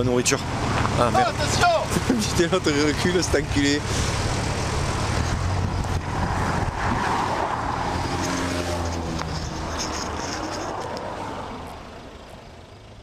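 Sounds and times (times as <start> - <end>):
car passing: 0.4 - 13.0
truck engine idling: 8.8 - 13.0.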